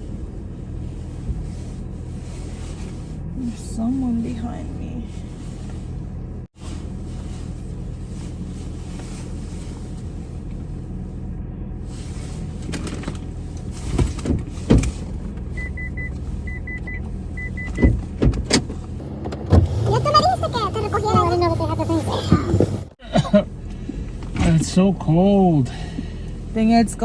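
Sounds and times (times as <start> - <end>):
car cabin hum: 0.0 - 27.0
sharp thumps: 17.7 - 23.0.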